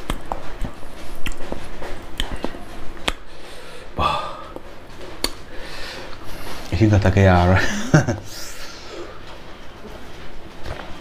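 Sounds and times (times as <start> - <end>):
chewing and lip-smacking: 0.0 - 3.3.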